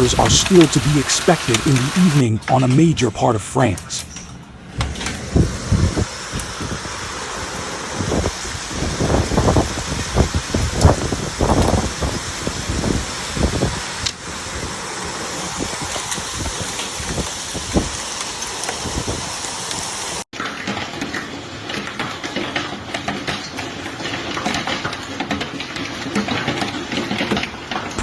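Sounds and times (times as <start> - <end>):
heavy rain pouring: 0.0 - 2.3, 6.8 - 20.2.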